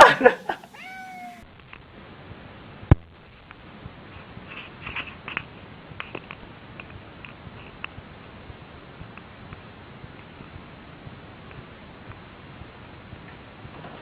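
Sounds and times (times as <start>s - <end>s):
rustling: 0.3s - 1.4s.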